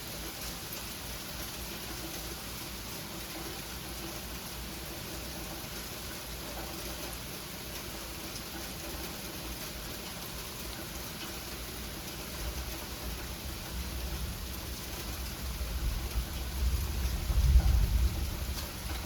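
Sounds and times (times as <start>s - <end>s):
rumble of thunder: 15.8s - 19.0s.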